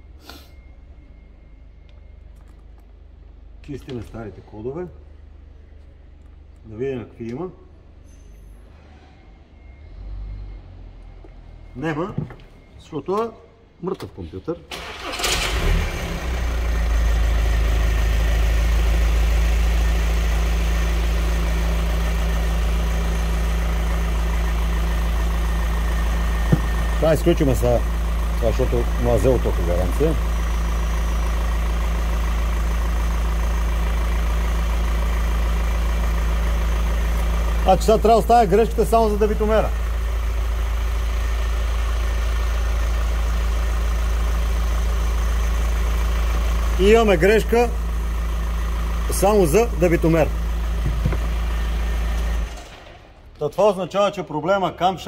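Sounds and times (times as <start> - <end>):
diesel engine idling: 14.4 - 55.0.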